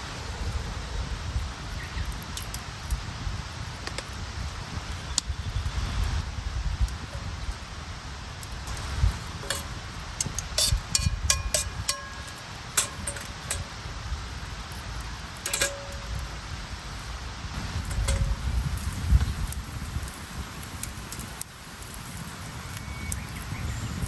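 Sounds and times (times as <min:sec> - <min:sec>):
metal cookware clinking: 0:08.7 - 0:13.8, 0:15.4 - 0:16.4, 0:17.8 - 0:18.5.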